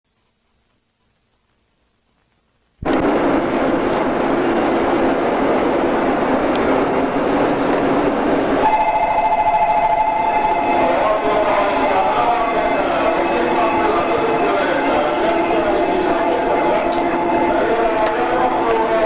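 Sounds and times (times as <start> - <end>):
electric train running: 2.8 - 19.0
steady multi-note tone: 8.6 - 19.0.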